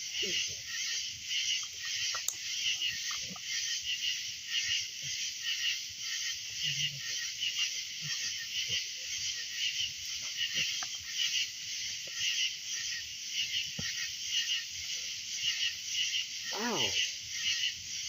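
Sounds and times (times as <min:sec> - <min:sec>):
frogs calling: 0:00.0 - 0:18.0
campfire pops: 0:01.5 - 0:03.5.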